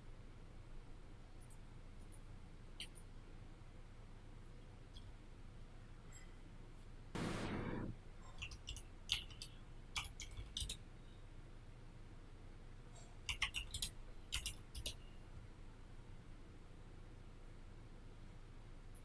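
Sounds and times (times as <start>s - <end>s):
keyboard and mouse clicking: 8.4s - 10.8s, 13.2s - 15.0s.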